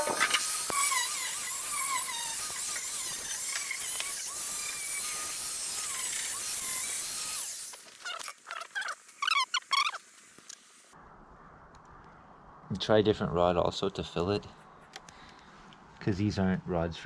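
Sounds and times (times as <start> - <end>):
welding arc crackling hiss: 0.0 - 11.0.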